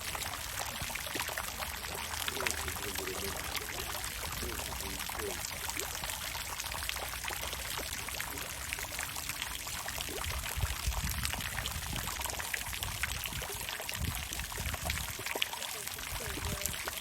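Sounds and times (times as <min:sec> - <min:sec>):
water fountain splashing: 0:00.0 - 0:17.0.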